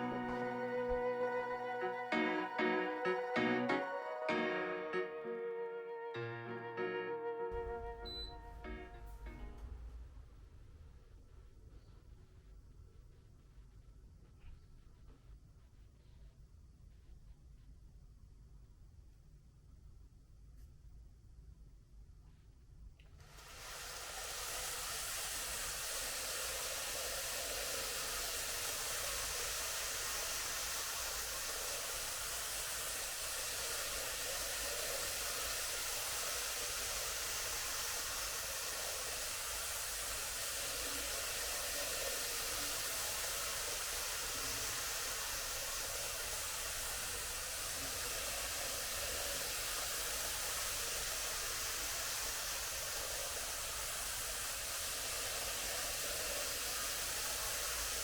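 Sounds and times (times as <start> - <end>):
model train whirring on track: 23.2 - 58.0.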